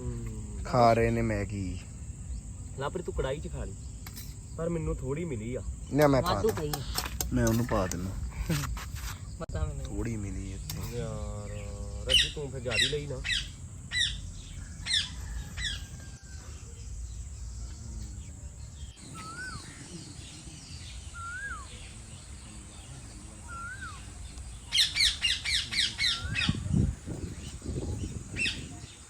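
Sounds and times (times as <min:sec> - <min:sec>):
rapid harsh bird calls: 0:00.0 - 0:29.0
bird whistling: 0:19.0 - 0:22.0, 0:23.3 - 0:26.8
wind rumble on microphone: 0:24.0 - 0:29.0.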